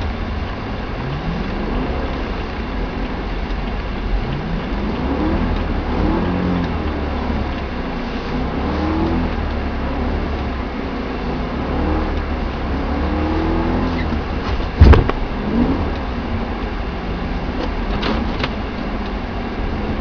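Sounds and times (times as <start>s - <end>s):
car engine running: 0.0s - 20.0s
loud thump: 14.4s - 15.2s.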